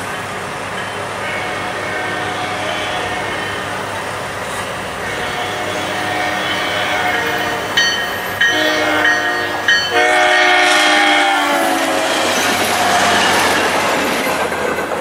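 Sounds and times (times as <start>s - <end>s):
train horn blasts: 1.2s - 3.8s, 5.0s - 13.6s
train wheels clattering on rails: 6.6s - 15.0s.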